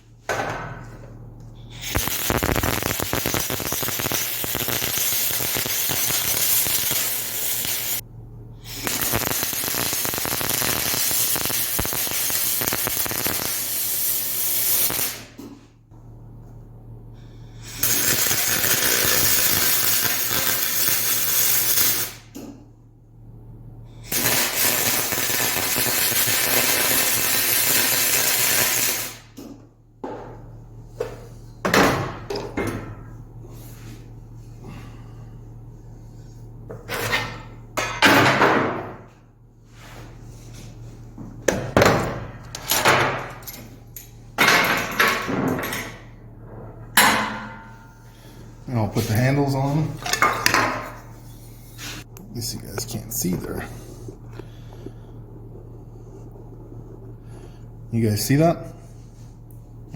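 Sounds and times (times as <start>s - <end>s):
electrical hum: 0.0s - 59.9s
welding arc hissing and crackling: 1.7s - 8.0s, 8.6s - 15.5s, 17.7s - 22.3s, 24.1s - 29.4s, 47.2s - 54.3s.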